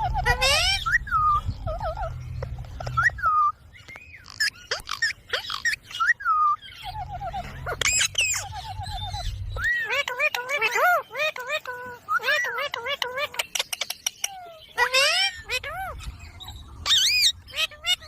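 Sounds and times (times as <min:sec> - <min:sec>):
parrot whistled chirps: 0:04.4 - 0:10.0.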